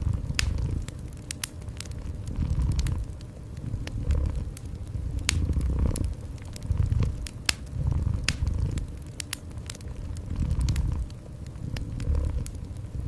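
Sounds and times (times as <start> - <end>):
fireplace fire crackling: 0.0 - 13.0
cat purring: 2.0 - 9.0, 10.1 - 12.8.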